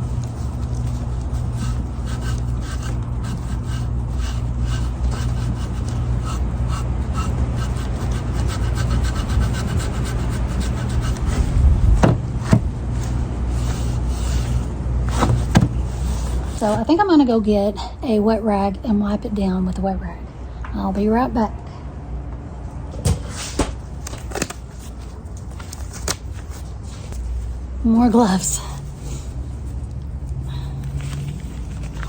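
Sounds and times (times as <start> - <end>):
sandpaper scraping wood: 0.0 - 16.9
steady low hum: 0.0 - 32.0.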